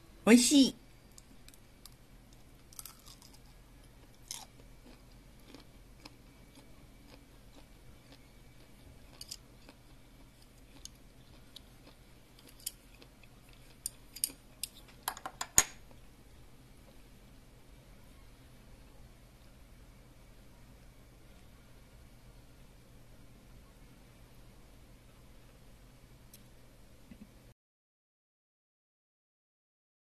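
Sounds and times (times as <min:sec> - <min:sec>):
person chewing and crunching: 0:01.9 - 0:14.9.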